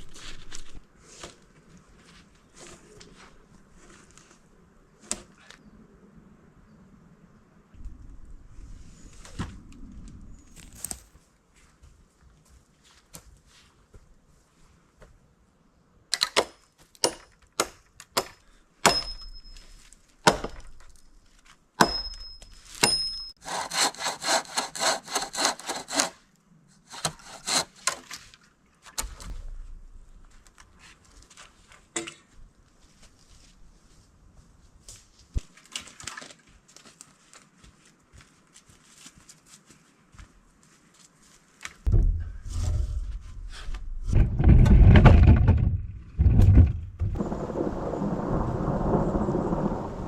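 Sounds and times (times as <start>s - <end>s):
light scraping: 10.4s - 11.2s, 41.8s - 47.4s
chopping strikes on wood: 20.3s - 20.7s
hand saw sawing wood: 23.4s - 26.2s, 26.8s - 28.1s.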